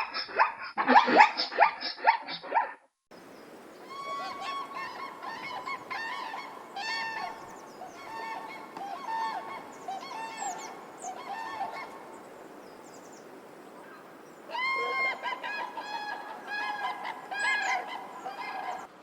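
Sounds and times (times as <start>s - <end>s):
dog barking rapidly: 0.0s - 2.8s
geese honking: 3.6s - 12.6s, 13.4s - 18.9s.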